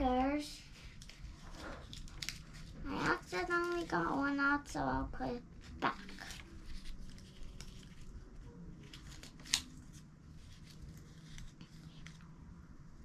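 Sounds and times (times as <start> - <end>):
sticker sheets rustling: 0.5 - 4.6.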